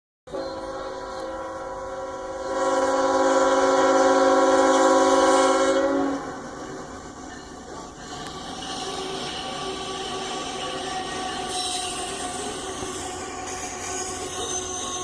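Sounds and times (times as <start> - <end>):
locomotive air horn blast: 0.3 - 6.6.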